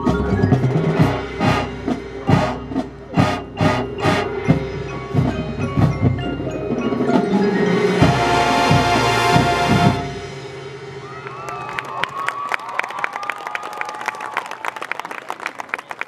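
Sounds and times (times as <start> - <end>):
sharp percussion hits: 0.0 - 11.7
sustained band chord: 0.9 - 11.0
ringing mallet percussion: 3.5 - 9.1.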